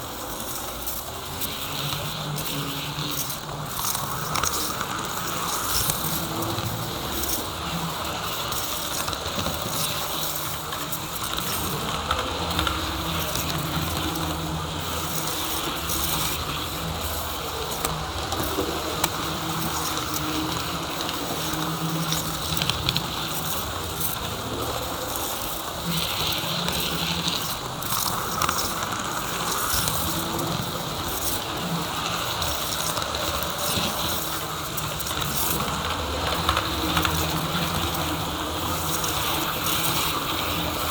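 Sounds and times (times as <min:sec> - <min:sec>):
model train motor hum: 0:00.0 - 0:40.9
wheels clicking on rails: 0:00.0 - 0:40.9.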